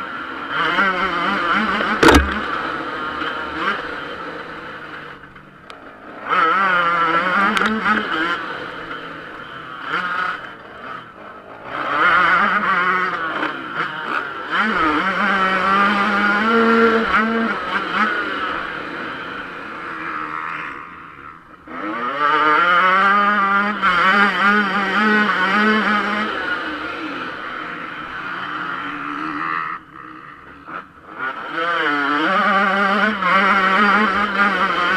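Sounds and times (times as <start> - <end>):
motocross engine revving: 0.5 - 5.0, 6.1 - 20.7.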